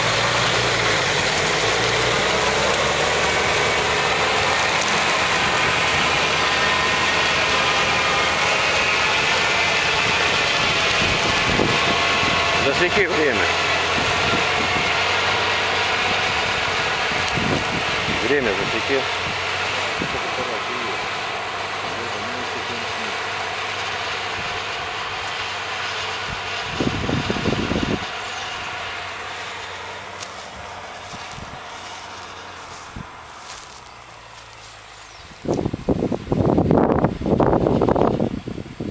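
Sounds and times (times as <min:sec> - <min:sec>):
milling machine cutting: 0:00.8 - 0:23.3.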